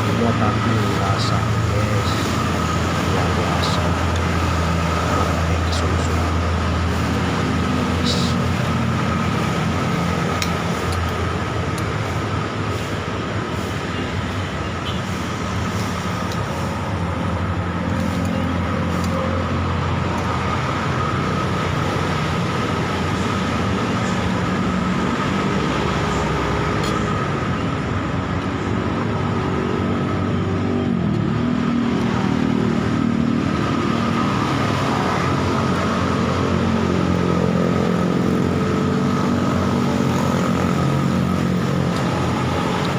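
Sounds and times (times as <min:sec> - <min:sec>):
steady high tone: 0:00.0 - 0:08.7
road traffic passing: 0:00.0 - 0:42.9.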